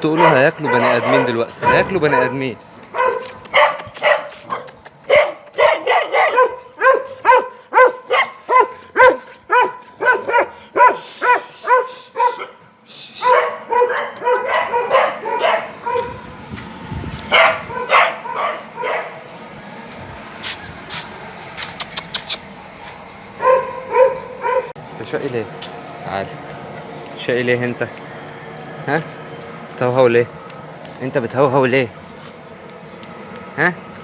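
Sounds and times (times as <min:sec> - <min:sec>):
dogs barking: 0:00.0 - 0:16.3, 0:17.2 - 0:19.4, 0:23.4 - 0:24.8.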